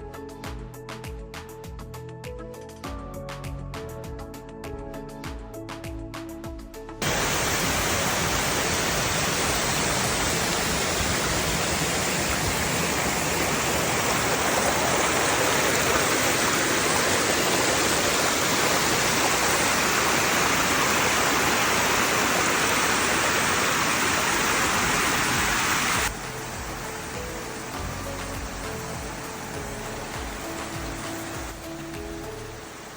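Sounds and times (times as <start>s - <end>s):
river water rushing: 7.0s - 32.9s.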